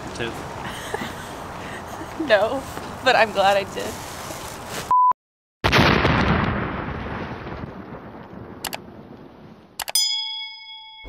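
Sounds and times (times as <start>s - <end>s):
explosion boom: 5.6s - 9.6s.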